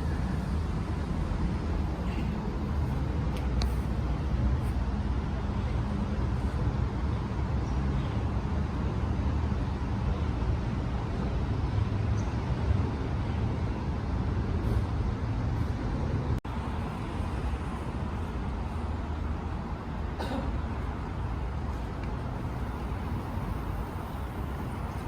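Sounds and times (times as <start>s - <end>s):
street traffic rumble: 0.0s - 25.0s.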